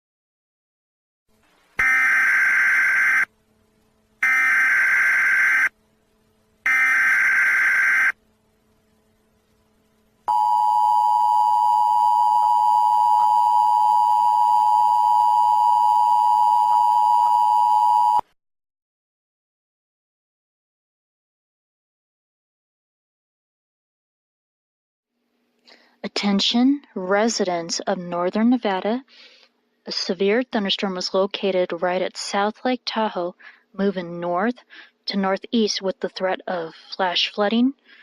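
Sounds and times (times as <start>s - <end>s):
two-tone attention signal: 10.3s - 18.2s.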